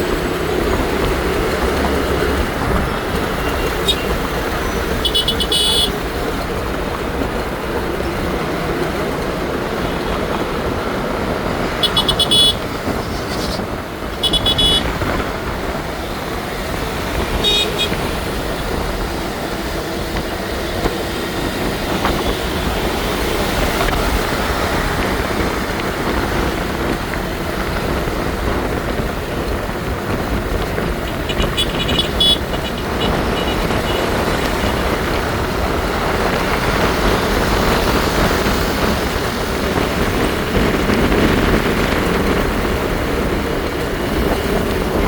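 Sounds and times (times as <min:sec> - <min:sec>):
traffic and road noise: 0:00.0 - 0:45.0
vehicle horns tooting: 0:00.2 - 0:06.7, 0:11.6 - 0:15.2, 0:16.0 - 0:24.2, 0:30.9 - 0:35.6.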